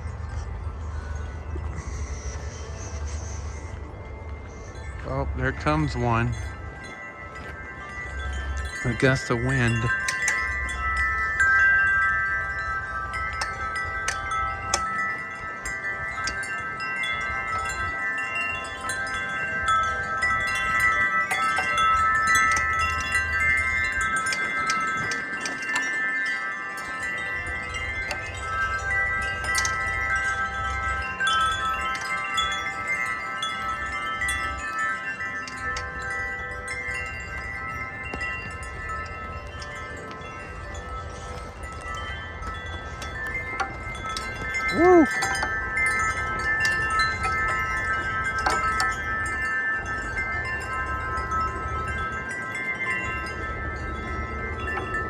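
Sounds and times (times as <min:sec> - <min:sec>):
tubular wind chimes ringing: 0:00.0 - 0:55.0
wind rumble on microphone: 0:00.0 - 0:55.0.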